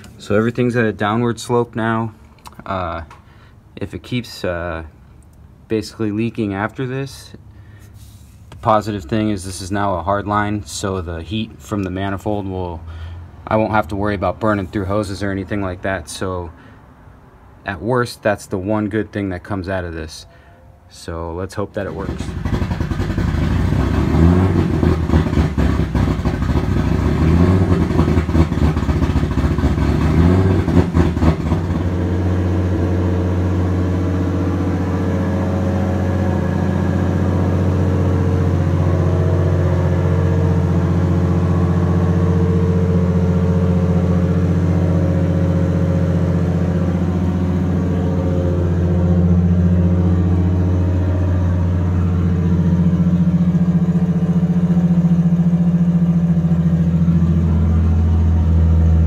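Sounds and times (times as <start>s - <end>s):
car engine idling: 21.7s - 59.0s.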